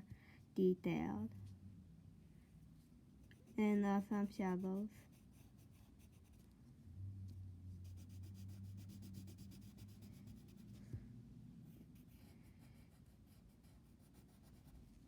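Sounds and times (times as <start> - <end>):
faint low hum: 0.0 - 15.0
drawing tool scratching on paper: 3.2 - 6.5, 7.8 - 10.8.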